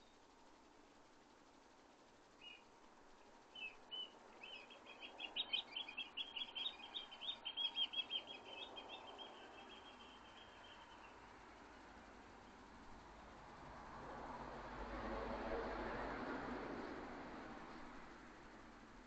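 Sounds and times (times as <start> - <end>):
songbird singing: 2.2 - 12.7.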